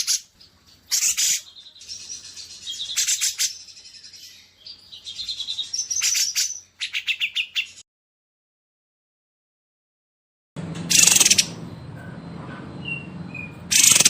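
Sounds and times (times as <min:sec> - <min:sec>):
songbird trills and chattering: 0:00.0 - 0:07.8, 0:10.9 - 0:11.6, 0:12.8 - 0:14.0.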